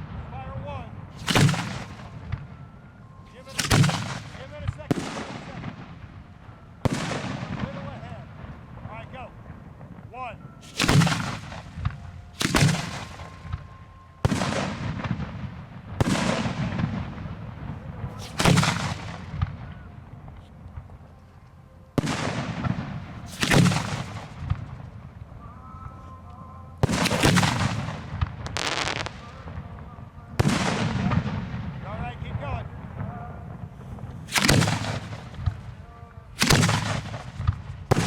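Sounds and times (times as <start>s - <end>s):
firework booms with echo: 1.2s - 2.5s, 3.6s - 6.2s, 6.8s - 8.9s, 9.5s - 19.7s, 22.0s - 25.0s, 26.8s - 32.0s, 32.8s - 35.8s, 36.4s - 38.0s.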